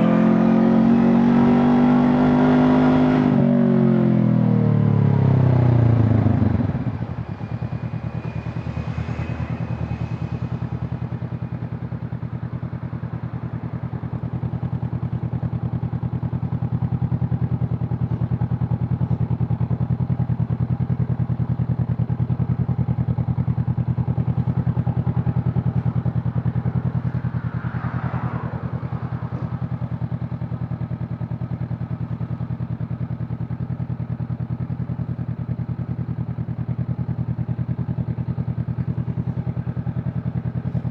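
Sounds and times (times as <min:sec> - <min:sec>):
motorcycle engine running: 0:00.0 - 0:40.9
falling whoosh: 0:06.0 - 0:12.5.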